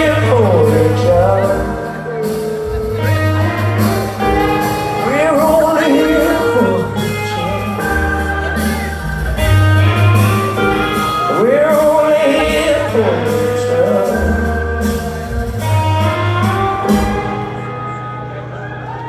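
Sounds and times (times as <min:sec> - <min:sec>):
man singing: 0:00.0 - 0:09.1, 0:10.9 - 0:15.3
electric guitar chords: 0:00.0 - 0:19.0
heavy bass line: 0:00.0 - 0:19.0.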